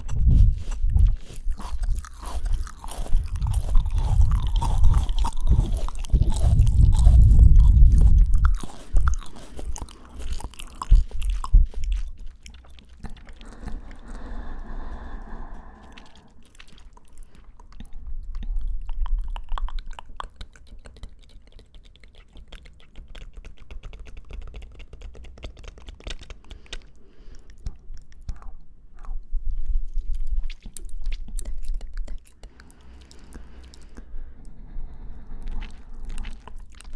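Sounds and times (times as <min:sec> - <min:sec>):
crunchy fruit chewing: 0:00.0 - 0:36.9.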